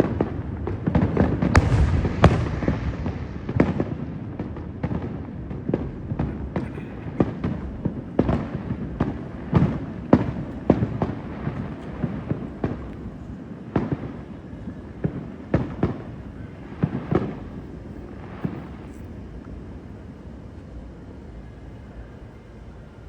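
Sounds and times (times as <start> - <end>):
steady low rumble: 0.0 - 13.6.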